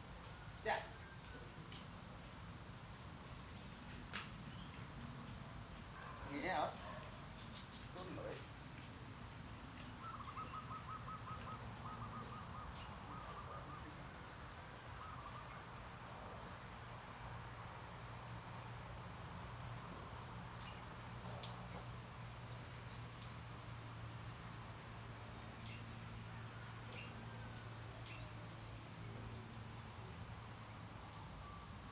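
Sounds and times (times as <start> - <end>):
bird trill: 10.0 - 14.0.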